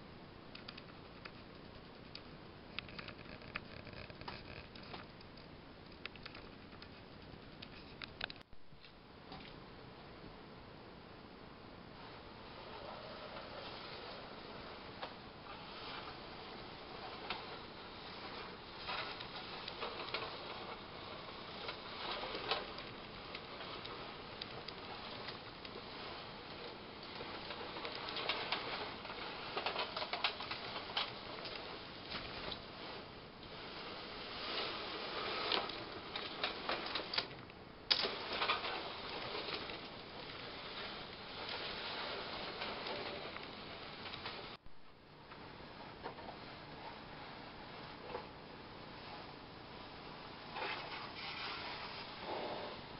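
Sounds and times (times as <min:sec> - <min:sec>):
toy train rattling on metal track: 0:15.5 - 0:31.6, 0:37.9 - 0:44.5.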